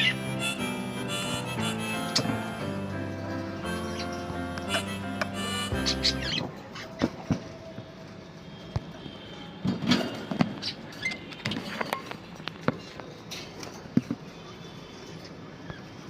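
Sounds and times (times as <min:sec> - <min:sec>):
budgerigar chirps: 0:00.0 - 0:02.8, 0:03.6 - 0:06.4.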